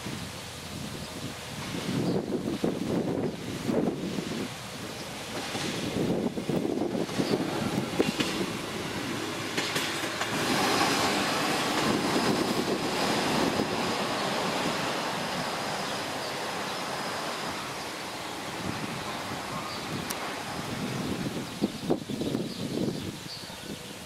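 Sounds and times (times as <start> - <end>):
train rumble: 0.0 - 24.0
train wheels clattering over rail joints: 4.8 - 17.9.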